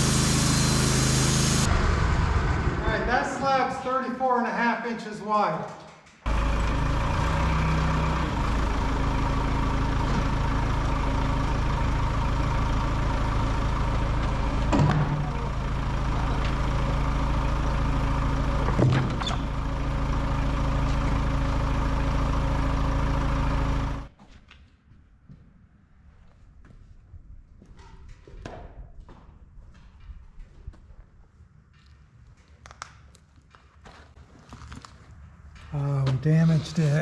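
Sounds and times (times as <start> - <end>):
band sawmill running: 0.0 - 4.0, 6.3 - 24.1.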